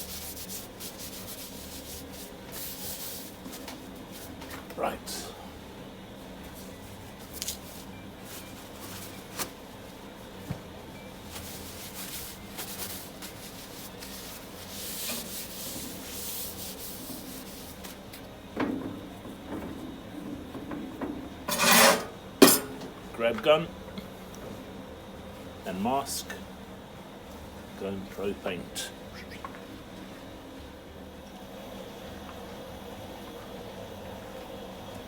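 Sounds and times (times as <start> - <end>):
hand rubbing and wiping: 0.0 - 4.3, 11.3 - 18.0
rustling scrape: 21.5 - 22.1.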